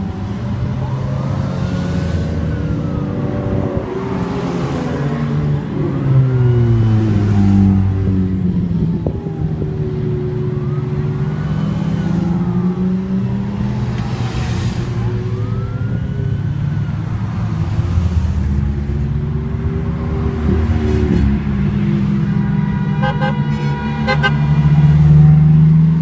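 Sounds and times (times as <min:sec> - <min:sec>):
car engines in traffic: 0:00.0 - 0:26.0.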